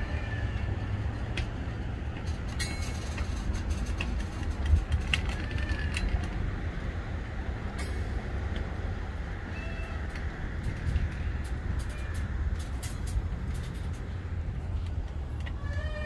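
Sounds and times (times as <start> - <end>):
wheel squeals: 0.0 - 1.1, 2.2 - 6.5, 9.5 - 14.0, 15.4 - 16.0
freight train cars rumbling: 0.0 - 16.0
wheels and couplers clicking: 0.0 - 16.0.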